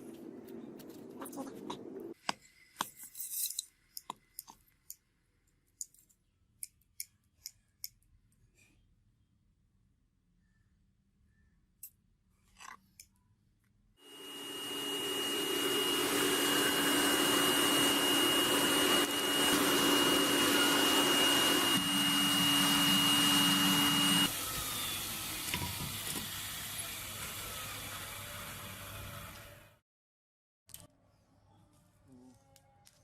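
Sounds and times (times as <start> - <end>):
power tool motor whining: 14.1 - 29.6.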